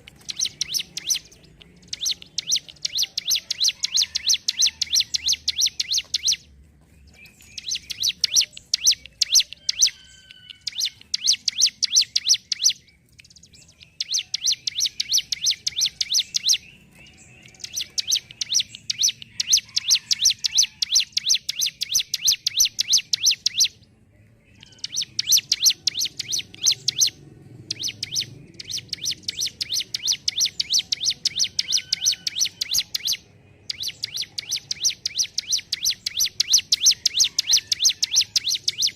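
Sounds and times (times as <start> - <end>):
bird singing rapid high notes: 0.0 - 23.8, 24.5 - 38.9.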